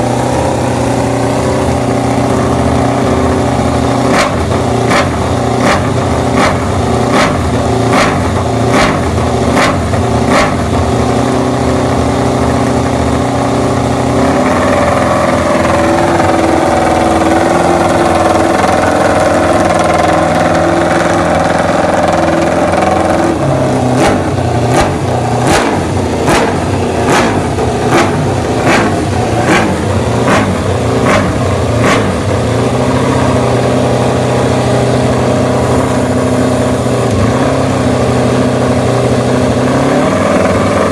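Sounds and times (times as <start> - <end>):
motorcycle engine crackling: 0.0 - 37.2.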